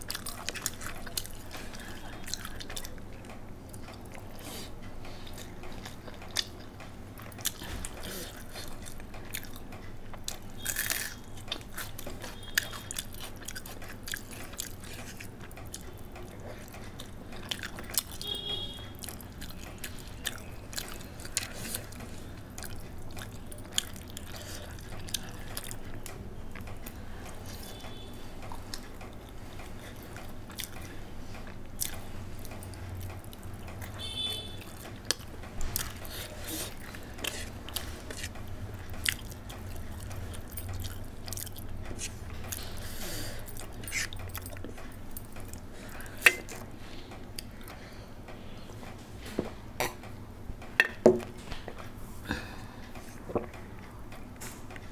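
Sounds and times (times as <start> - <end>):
chewing and biting: 0.0 - 18.4, 19.0 - 34.0, 34.6 - 46.8
wet mouth clicks: 43.7 - 44.6.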